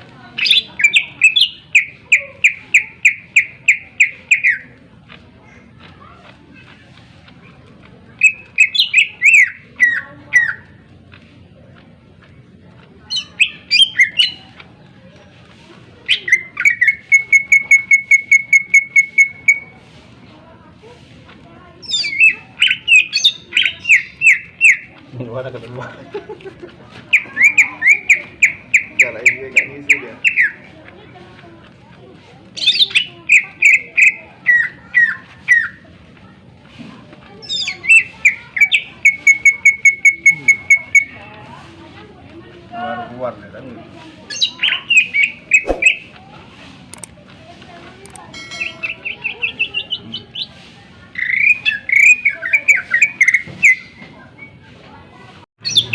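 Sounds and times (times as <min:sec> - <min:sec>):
bird singing: 0:00.4 - 0:04.6, 0:08.2 - 0:10.6, 0:13.1 - 0:14.4, 0:21.8 - 0:24.9, 0:27.1 - 0:30.6, 0:32.6 - 0:35.8, 0:44.3 - 0:46.1, 0:48.4 - 0:50.5, 0:51.2 - 0:54.0, 0:55.6 - 0:55.9
bird singing loudly: 0:00.4 - 0:04.6, 0:55.6 - 0:55.9.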